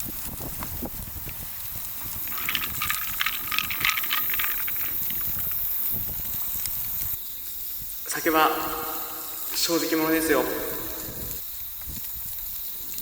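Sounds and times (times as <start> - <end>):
liquid bubbling and crackling: 1.1 - 7.2.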